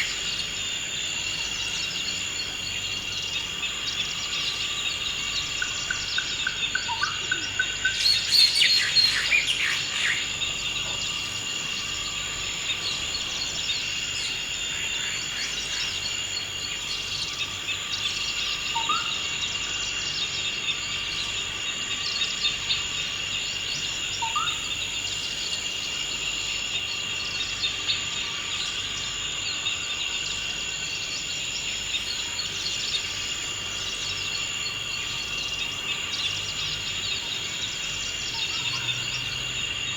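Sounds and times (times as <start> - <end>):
birds calling: 0.0 - 21.5
high insect chorus: 0.0 - 39.9.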